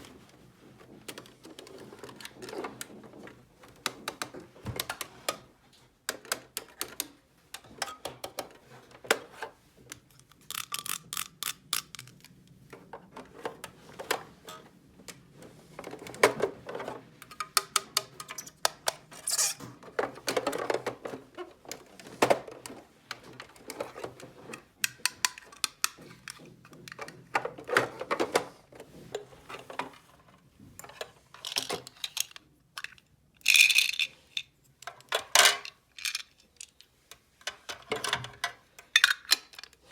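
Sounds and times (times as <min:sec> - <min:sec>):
plastic toy pieces clicking: 0:09.9 - 0:12.3, 0:31.4 - 0:36.9.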